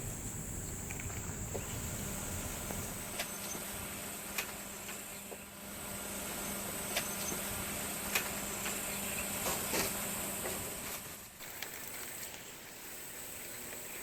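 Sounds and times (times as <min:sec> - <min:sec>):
high-pitched hiss: 0:00.0 - 0:04.0, 0:11.4 - 0:14.0
low steady hum: 0:00.0 - 0:10.5.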